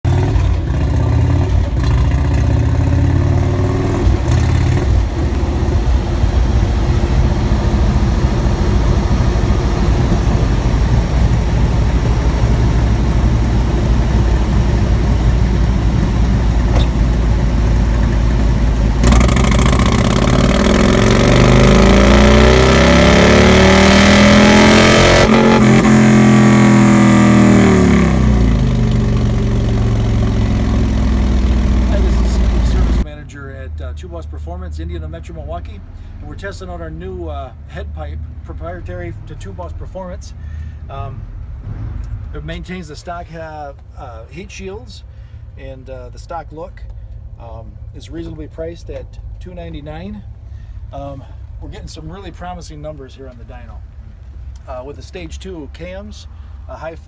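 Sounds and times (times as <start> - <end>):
motorcycle engine idling and revving: 0.0 - 33.1.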